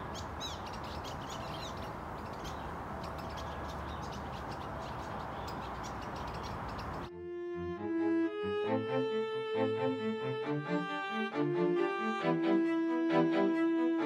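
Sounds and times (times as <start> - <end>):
birds chirping and trilling: 0.0 - 7.1
bowed string music: 7.1 - 14.0.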